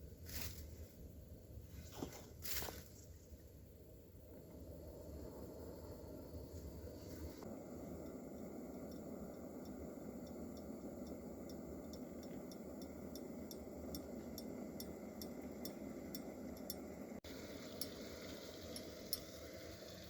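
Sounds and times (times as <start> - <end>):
low steady hiss: 0.0 - 20.0
campfire crackling: 7.4 - 20.0.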